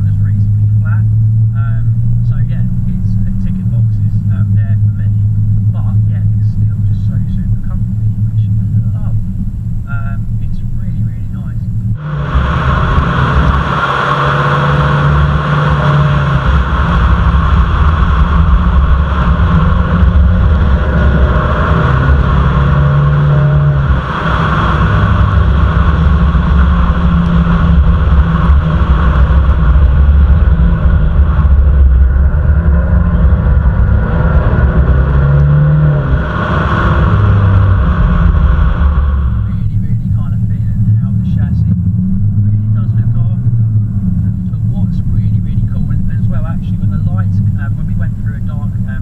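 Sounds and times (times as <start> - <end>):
car engine drone: 0.0 - 49.0
road noise: 0.0 - 49.0.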